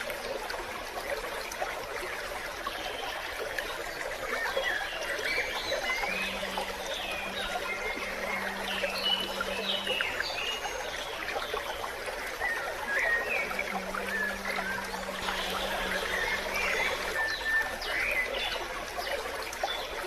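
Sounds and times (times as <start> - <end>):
creek trickling: 0.0 - 20.0
low steady hum: 4.4 - 19.3.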